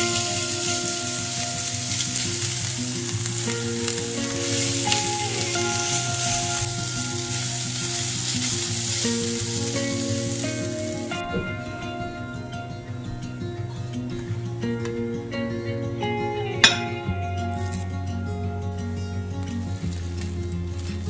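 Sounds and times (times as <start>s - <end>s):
vegetables sizzling in a pan: 0.0s - 12.2s, 16.6s - 18.0s, 19.7s - 21.0s.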